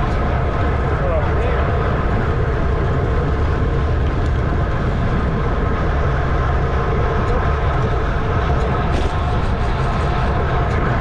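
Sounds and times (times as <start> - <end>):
wind rush on microphone: 0.0 - 11.0.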